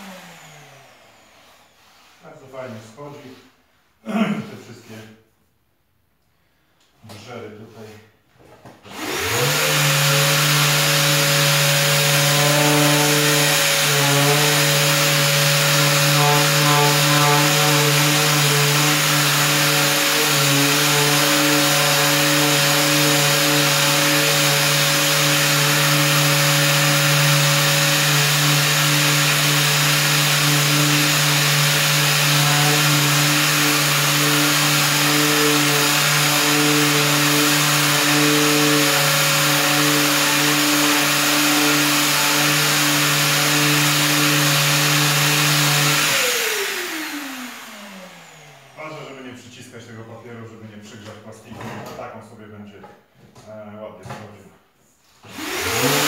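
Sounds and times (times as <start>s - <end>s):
orbital sander sanding: 0.0s - 2.2s, 8.9s - 48.8s, 55.3s - 56.0s.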